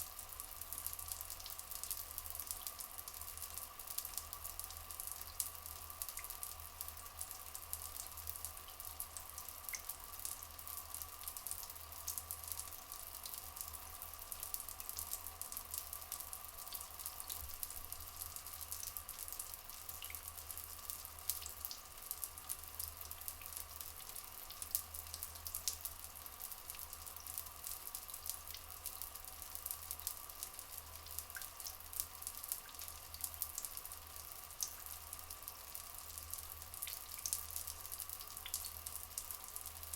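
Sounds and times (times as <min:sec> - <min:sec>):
water trickling and dripping: 0:00.0 - 0:39.9.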